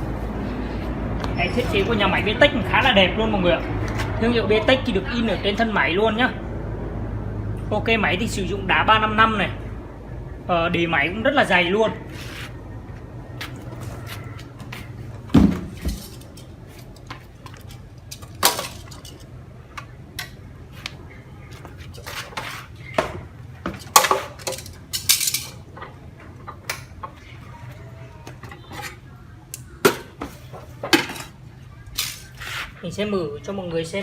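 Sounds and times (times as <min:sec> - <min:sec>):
metal parts knocking and clinking: 0:15.8 - 0:19.3, 0:23.7 - 0:25.9.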